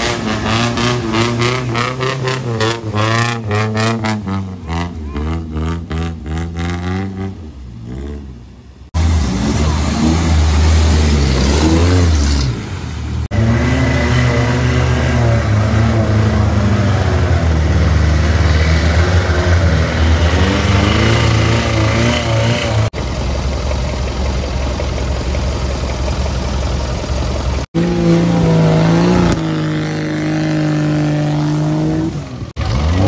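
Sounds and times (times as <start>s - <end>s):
off-road engines revving: 0.0s - 23.3s, 25.8s - 33.0s
loud low engine: 8.9s - 33.0s.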